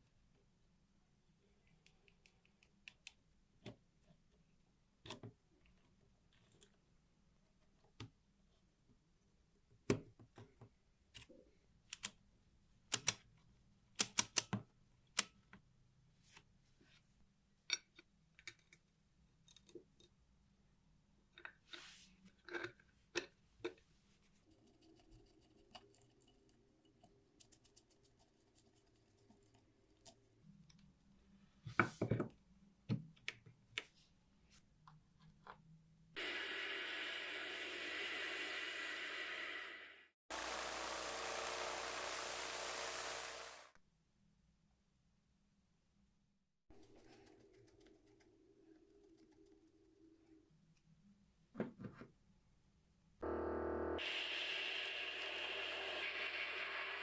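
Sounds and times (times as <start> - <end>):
low buzz: 40.3 - 43.7, 53.2 - 55.3.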